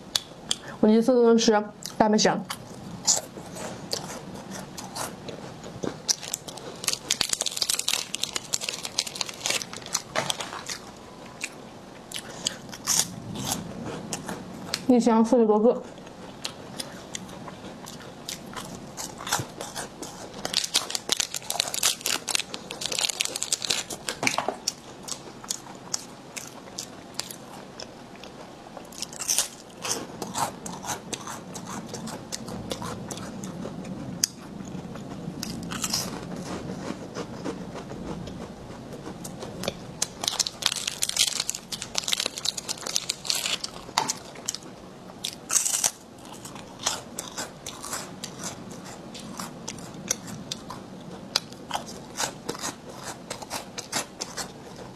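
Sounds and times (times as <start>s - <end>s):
crunching crisp snack: 2.5s - 14.9s, 16.0s - 33.6s, 34.2s - 54.9s.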